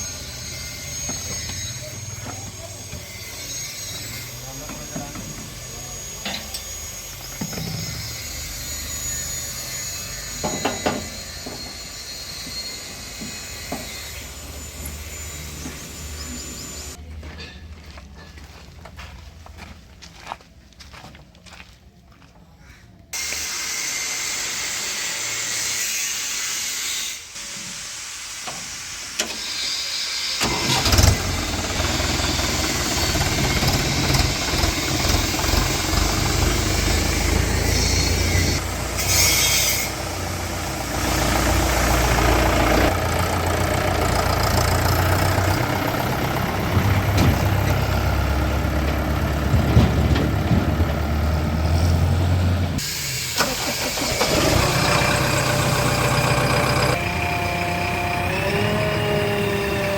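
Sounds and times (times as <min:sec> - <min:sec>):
diesel engine rumbling: 0:00.0 - 0:07.4, 0:13.3 - 0:18.9, 0:30.4 - 0:59.9.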